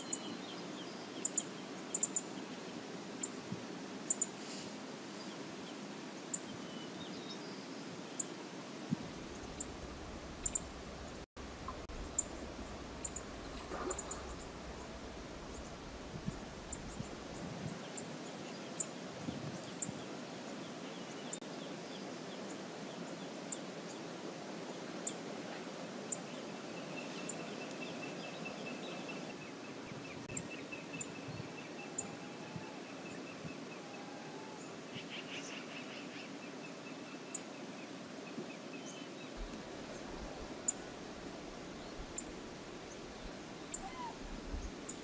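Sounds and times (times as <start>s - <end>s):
small birds chirping: 0.0s - 2.6s, 4.1s - 4.4s, 9.2s - 22.6s, 41.7s - 45.0s
river water rushing: 8.5s - 17.4s
high bird chirps: 11.7s - 15.9s.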